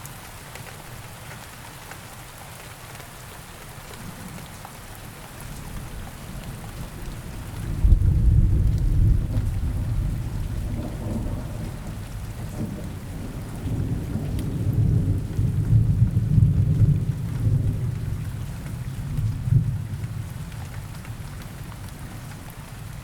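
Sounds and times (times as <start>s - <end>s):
steady rain: 0.0s - 23.0s
thunder rumbling: 6.8s - 18.2s.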